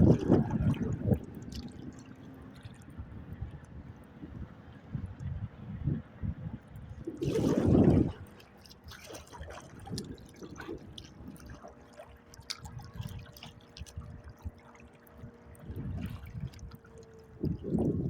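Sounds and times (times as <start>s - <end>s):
water splashing and dripping: 0.0s - 2.9s, 7.0s - 18.0s
faint steady hum: 0.0s - 18.0s.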